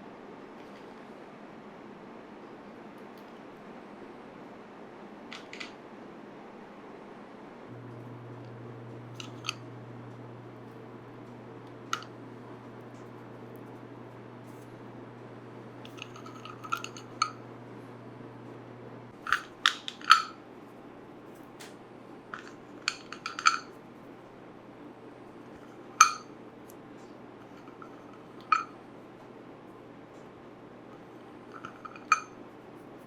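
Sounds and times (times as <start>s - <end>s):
low steady hum: 0.0s - 33.0s
kitchenware clinking: 15.8s - 17.5s, 22.4s - 23.8s, 31.6s - 32.4s.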